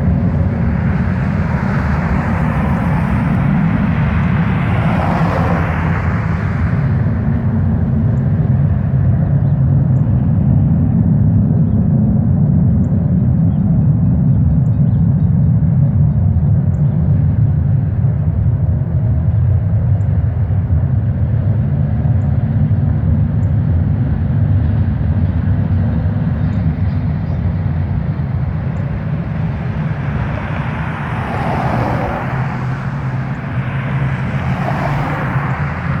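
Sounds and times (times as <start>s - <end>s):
rushing noise: 0.0s - 7.8s, 27.9s - 36.0s
low rumbling hum: 0.0s - 36.0s.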